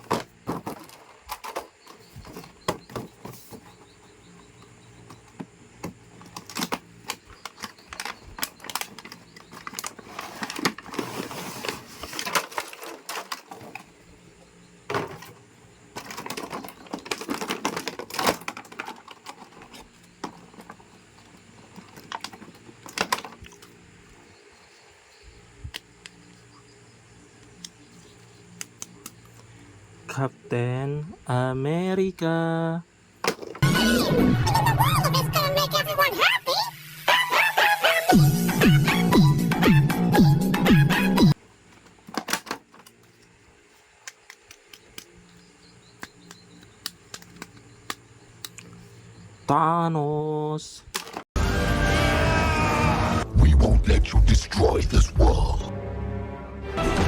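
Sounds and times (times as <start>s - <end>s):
plastic toy and packaging clicks: 5.3s - 13.9s, 16.0s - 20.8s, 21.7s - 23.8s, 41.8s - 43.3s, 44.0s - 45.2s, 46.0s - 48.7s
music: 33.6s - 36.0s, 36.6s - 41.4s, 51.4s - 53.5s, 55.5s - 57.0s.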